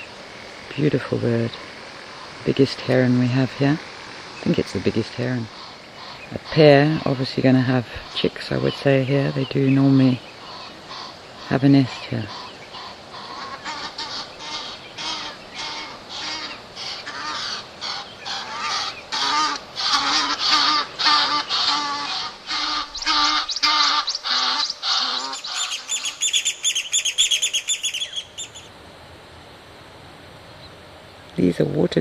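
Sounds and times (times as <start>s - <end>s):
geese honking: 0.9s - 28.7s
high thin bird chirps: 21.5s - 28.7s.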